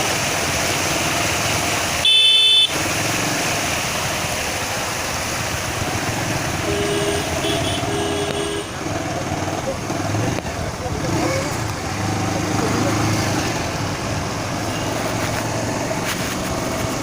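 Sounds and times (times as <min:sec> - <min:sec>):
vehicle horn blast: 0:02.0 - 0:02.8, 0:06.6 - 0:08.8.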